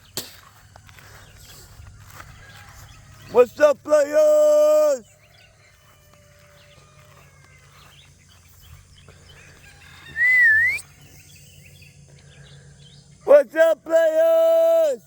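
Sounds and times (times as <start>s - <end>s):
faint bird chirps: 5.0s - 13.3s
whistled note sweeping upward: 10.1s - 11.0s.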